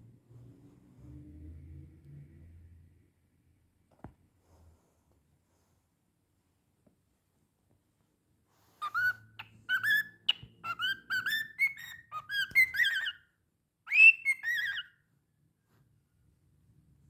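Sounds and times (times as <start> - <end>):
cockatiel whistling: 8.8 - 13.2, 13.9 - 14.9.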